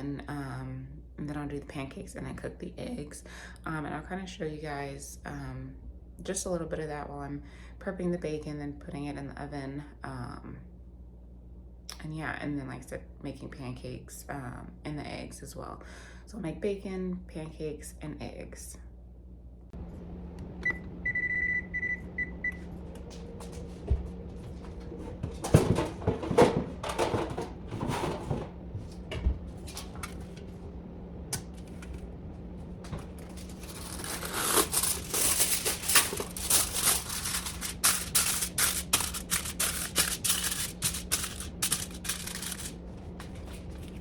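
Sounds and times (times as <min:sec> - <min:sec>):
faint steady hum: 0:00.0 - 0:44.0
kitchen handling clatters: 0:24.6 - 0:30.4, 0:32.9 - 0:44.0
wrapping material crinkling: 0:33.3 - 0:44.0.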